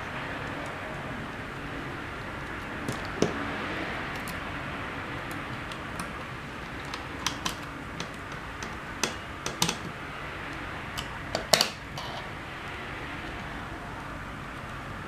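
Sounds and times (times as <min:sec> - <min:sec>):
steady hiss: 0:00.0 - 0:15.0
small hard objects clicking: 0:05.2 - 0:12.2.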